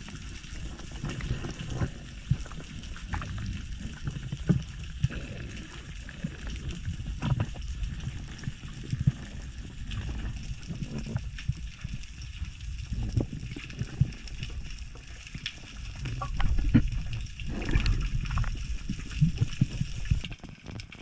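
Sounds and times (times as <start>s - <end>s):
muffled water sloshing underwater: 0.0s - 21.0s.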